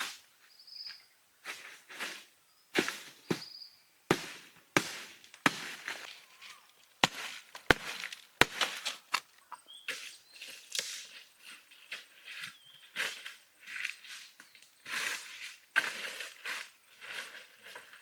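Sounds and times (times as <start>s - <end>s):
bird chirping: 0.4s - 1.2s, 2.4s - 4.0s, 6.1s - 7.0s, 9.0s - 10.8s, 11.7s - 13.0s.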